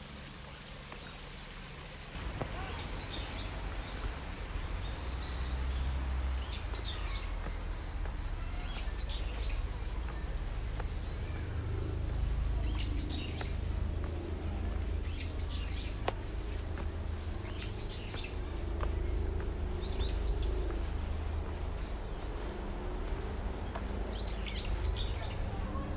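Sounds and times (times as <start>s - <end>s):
steady low rumble: 1.8s - 25.9s.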